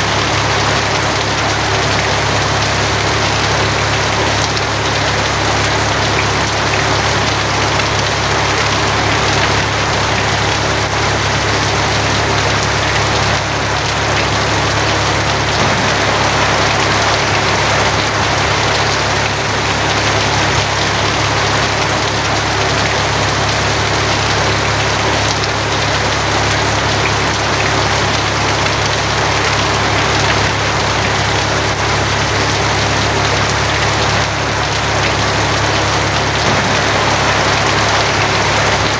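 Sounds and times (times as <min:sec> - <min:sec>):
heavy rain on a tin roof: 0:00.0 - 0:38.9
low rumble: 0:13.9 - 0:20.5, 0:36.3 - 0:38.9.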